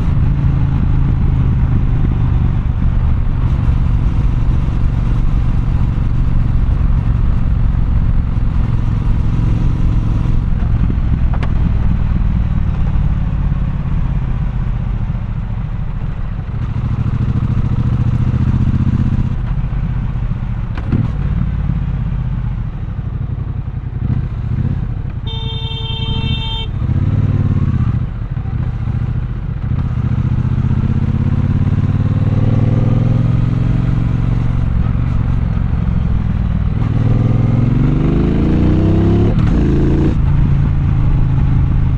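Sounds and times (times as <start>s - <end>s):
motorcycle engine revving: 0.0s - 14.2s, 16.4s - 20.0s, 23.5s - 41.9s
horn honking: 25.2s - 26.9s.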